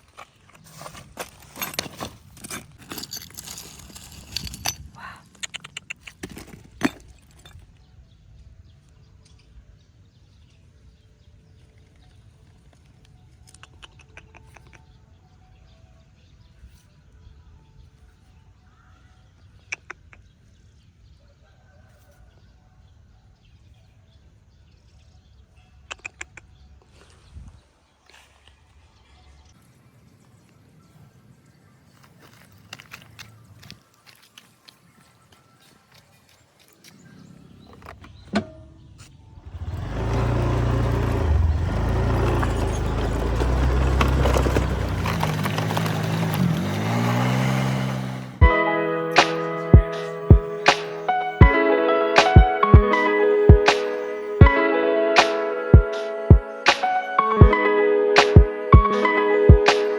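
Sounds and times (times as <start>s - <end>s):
quick ticks: 5.4s - 6.2s.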